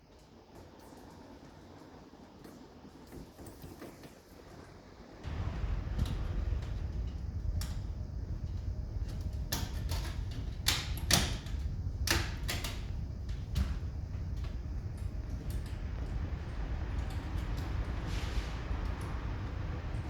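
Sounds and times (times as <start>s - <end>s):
low rumble: 5.2s - 20.0s.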